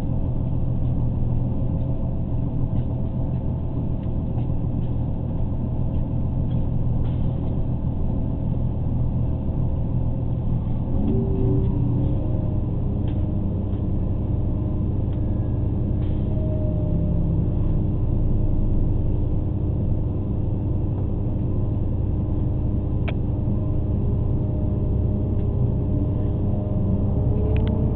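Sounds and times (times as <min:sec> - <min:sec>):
diesel train rumble: 0:00.0 - 0:27.9
click: 0:27.5 - 0:27.8.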